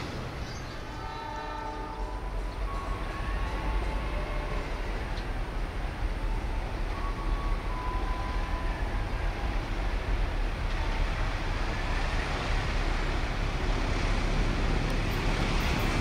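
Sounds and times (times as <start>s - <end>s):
diesel train approaching: 0.0s - 16.0s.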